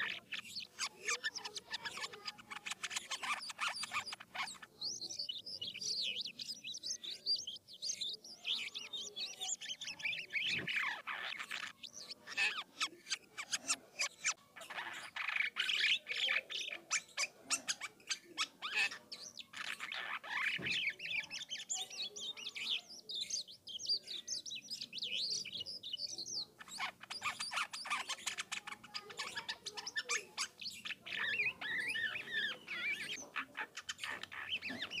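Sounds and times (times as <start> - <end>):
starling singing: 0.0 - 35.0.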